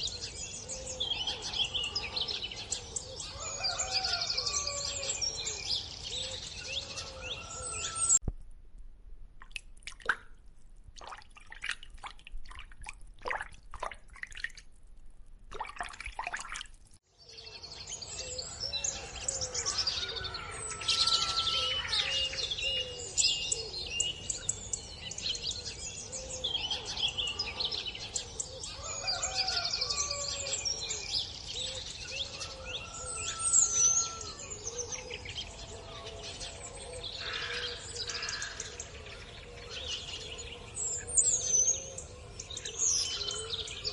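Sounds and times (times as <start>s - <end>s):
chorus of birds chirping: 0.0s - 8.2s, 17.2s - 43.9s.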